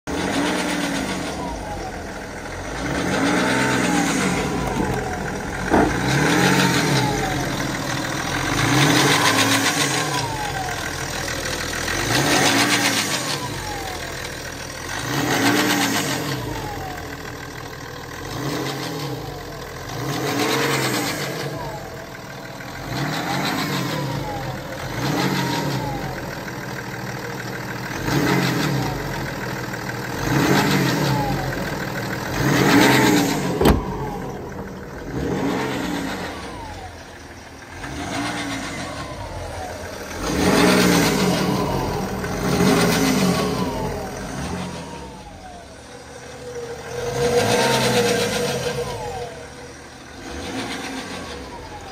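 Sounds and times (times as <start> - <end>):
diesel engine revving: 0.0 - 51.9.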